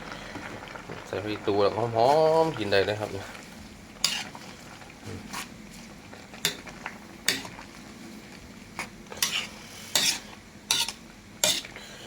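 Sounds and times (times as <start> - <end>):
utensil scraping a cooking pot: 4.0 - 5.8, 8.8 - 11.9.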